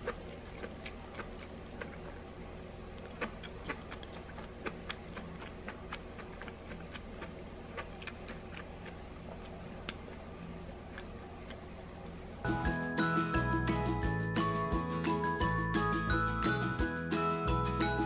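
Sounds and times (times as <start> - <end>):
person chewing crunchy food: 0.0 - 11.7
steady low hum: 0.0 - 18.0.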